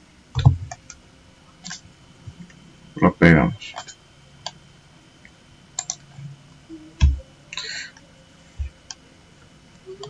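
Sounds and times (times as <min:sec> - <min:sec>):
low thumps: 0:00.4 - 0:00.9, 0:07.0 - 0:07.4
keystrokes: 0:05.8 - 0:06.0
computer mouse clicks: 0:05.8 - 0:06.1.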